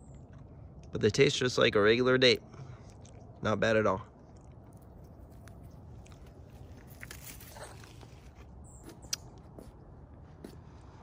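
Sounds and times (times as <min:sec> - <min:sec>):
person chewing: 0:02.8 - 0:03.4, 0:04.2 - 0:08.4.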